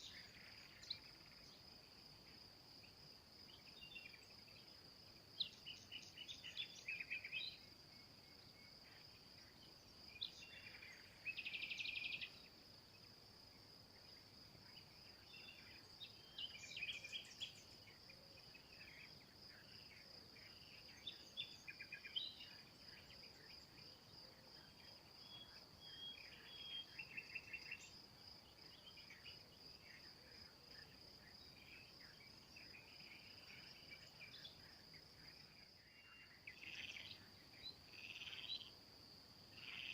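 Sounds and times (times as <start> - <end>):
songbirds calling and singing: 0.0 - 39.9
high-pitched insect trill: 36.5 - 38.8.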